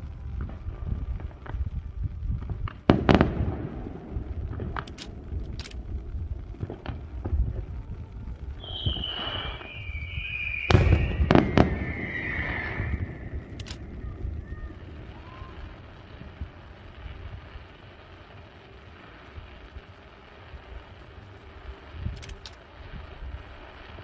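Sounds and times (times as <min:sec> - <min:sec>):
firework bangs: 0:00.0 - 0:24.0
firework cracks: 0:00.0 - 0:24.0
firework whistle sliding down: 0:08.6 - 0:16.1.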